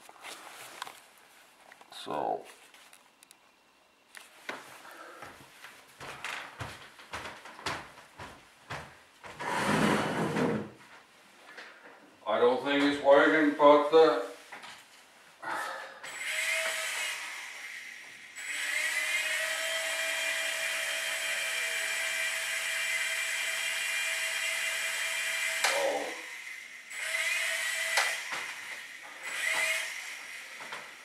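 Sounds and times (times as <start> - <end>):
small electric rotor motors whining: 16.1 - 31.0.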